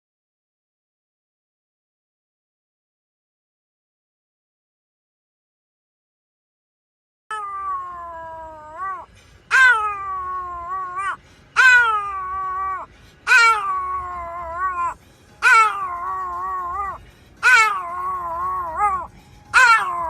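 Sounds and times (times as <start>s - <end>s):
cat meowing: 7.3s - 20.0s.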